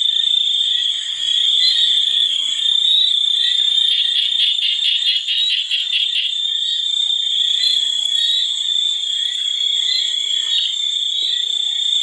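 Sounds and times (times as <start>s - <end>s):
animals calling in chorus: 3.8s - 6.4s.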